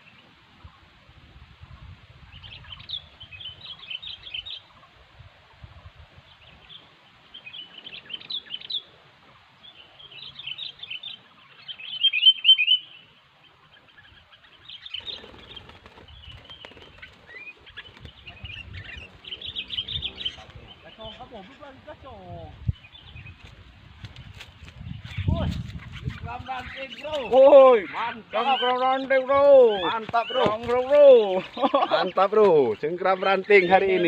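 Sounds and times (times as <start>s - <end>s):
bulbuls chirping: 1.6s - 34.0s.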